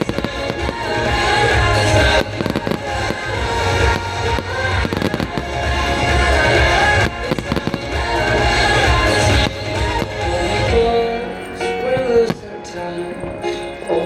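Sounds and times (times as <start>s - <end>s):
fireworks bursting and crackling: 0.0s - 11.0s
music playing: 0.0s - 14.0s.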